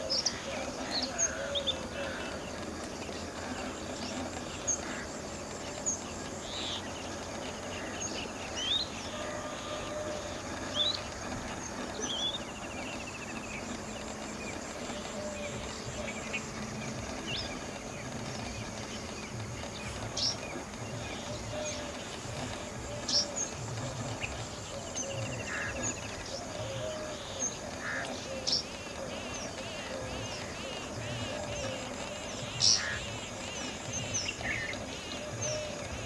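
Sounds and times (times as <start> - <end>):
background hiss: 0.0 - 36.0.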